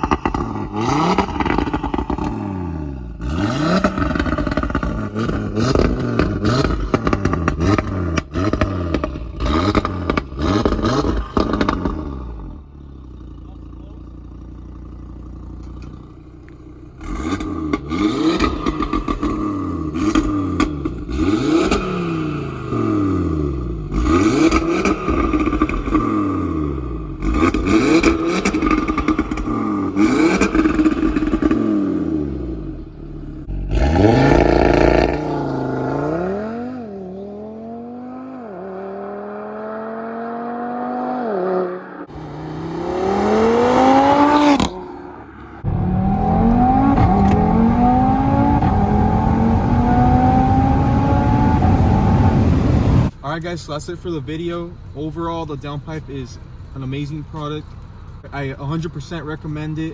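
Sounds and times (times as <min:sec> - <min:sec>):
car engine revving: 0:00.0 - 0:59.9
car accelerating through gears: 0:17.0 - 0:32.7, 0:33.4 - 0:53.1.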